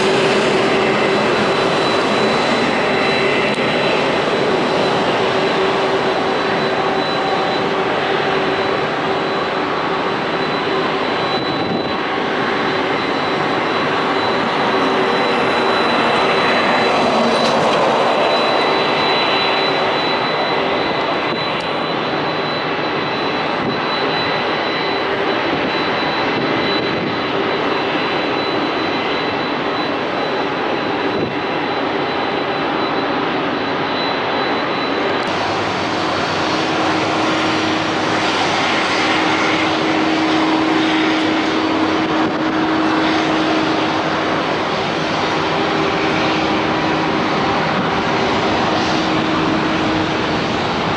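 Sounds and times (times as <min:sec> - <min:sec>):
high engine whine: 0:00.0 - 0:50.9
jet engines running: 0:00.0 - 0:50.9.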